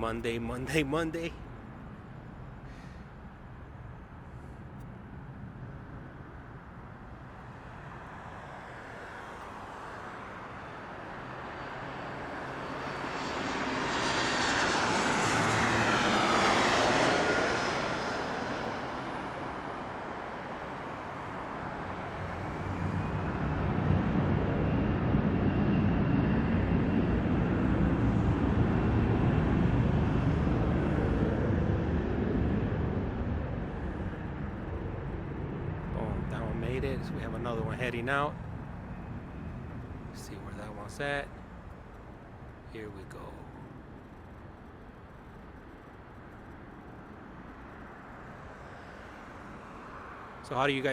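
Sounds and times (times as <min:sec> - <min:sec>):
jet engines whining: 0:12.6 - 0:20.0, 0:21.4 - 0:41.3
deep steady jet rumble: 0:22.6 - 0:41.3.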